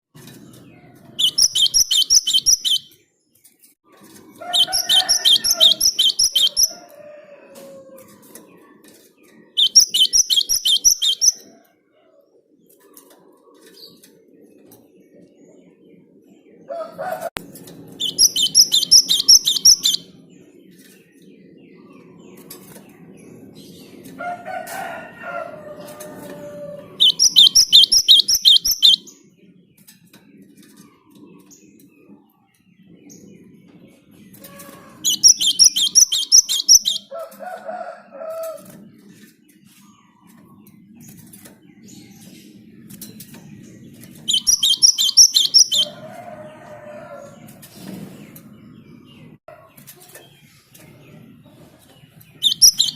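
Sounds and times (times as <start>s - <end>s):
sparrow singing rapid high notes: 1.2s - 2.9s, 4.6s - 6.7s, 9.6s - 11.4s, 18.0s - 20.0s, 27.0s - 29.0s, 35.0s - 37.1s, 44.3s - 45.9s, 52.4s - 52.9s.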